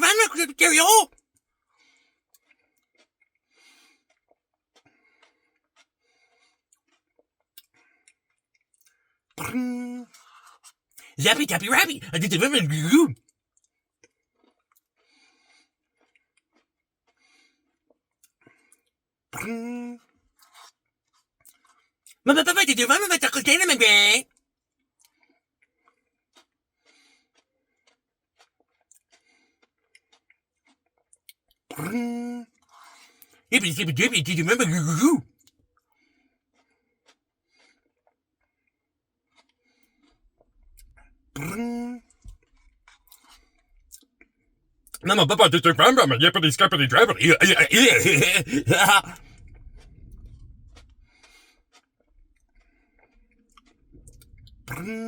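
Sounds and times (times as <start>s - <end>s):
held vocal sound: 0.0s - 1.1s, 11.1s - 13.2s, 22.3s - 24.2s, 33.5s - 35.2s, 45.0s - 49.2s
breathy noise: 11.0s - 13.2s, 33.6s - 35.2s, 45.0s - 49.2s
mouth sounds of eating: 11.0s - 13.2s, 22.3s - 24.2s, 33.6s - 35.2s, 45.0s - 49.2s
mouth clicks and smacks of eating: 28.5s - 29.2s.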